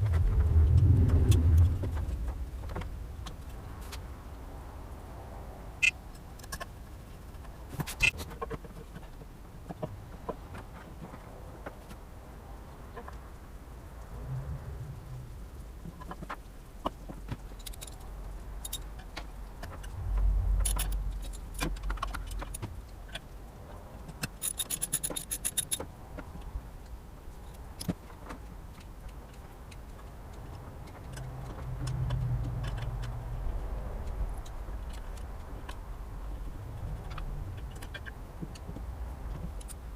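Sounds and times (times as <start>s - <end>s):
metal tools clinking: 24.4s - 25.8s.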